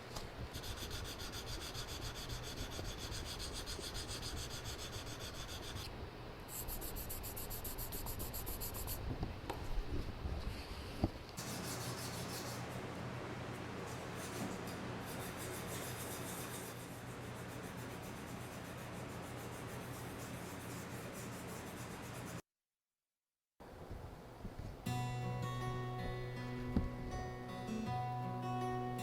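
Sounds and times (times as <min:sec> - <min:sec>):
hand rubbing on ceramic: 0:06.5 - 0:09.0.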